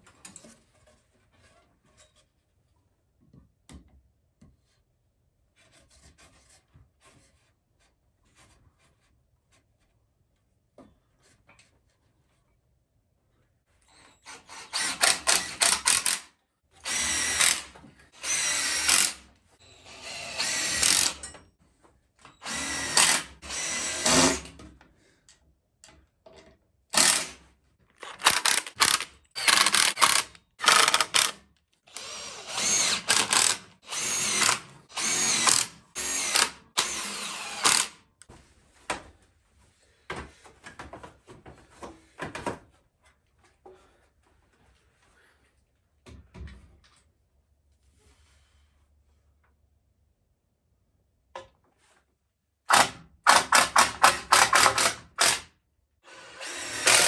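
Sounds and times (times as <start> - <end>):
power drill running in bursts: 16.8 - 21.2, 22.4 - 24.4, 27.0 - 27.4, 31.9 - 38.0, 56.1 - 57.0.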